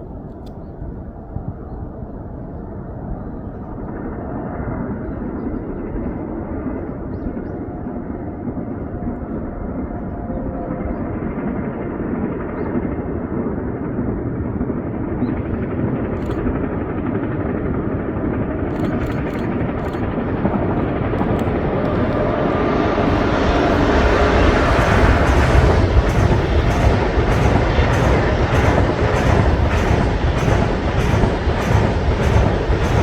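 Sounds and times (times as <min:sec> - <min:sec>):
train rumbling: 0:06.2 - 0:33.0
faint sharp ticks: 0:18.7 - 0:20.0.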